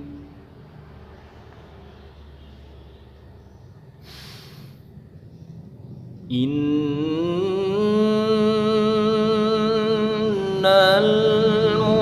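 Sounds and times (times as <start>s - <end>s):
person chanting long melodic note: 0.0s - 0.5s
person drawing breath: 4.0s - 4.9s.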